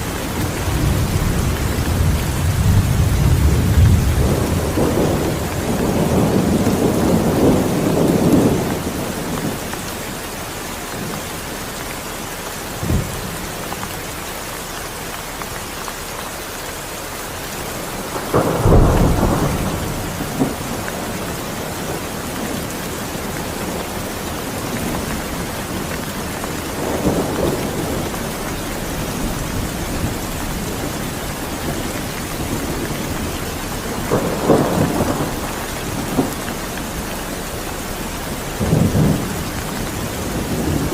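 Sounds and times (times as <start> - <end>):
steady rain: 0.0 - 40.9
low rolls of thunder: 0.3 - 9.7, 17.7 - 40.9.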